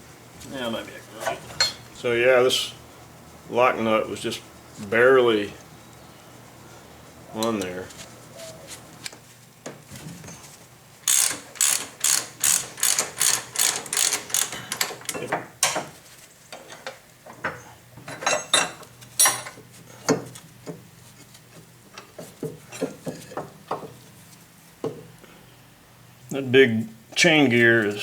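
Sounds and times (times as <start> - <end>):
ratchet wrench clicking: 11.1 - 14.9.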